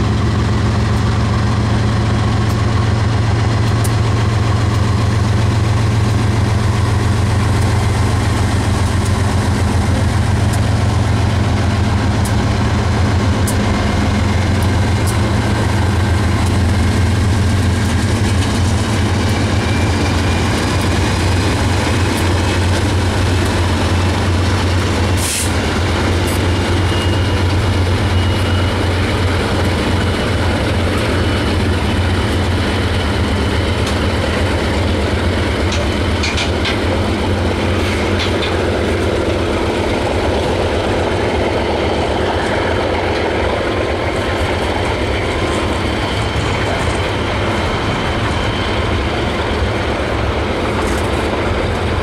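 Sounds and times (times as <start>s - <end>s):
deep locomotive engine drone: 0.0s - 52.0s.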